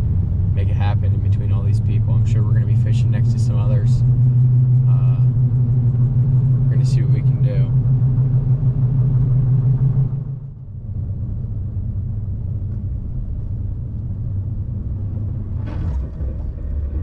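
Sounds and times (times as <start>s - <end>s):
low engine hum: 0.0s - 17.0s
road and tyre rumble: 0.0s - 17.0s.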